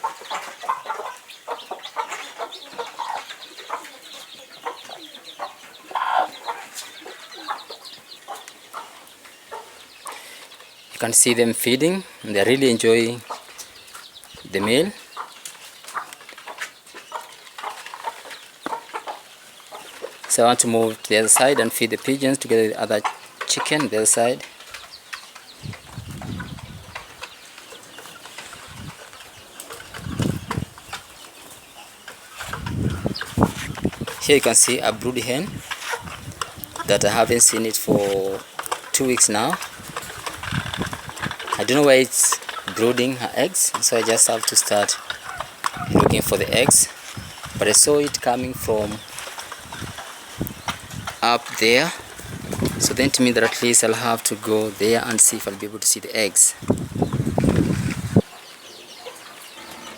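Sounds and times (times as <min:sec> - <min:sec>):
chickens clucking: 0:00.0 - 0:59.9
birds flapping wings: 0:23.0 - 0:55.5.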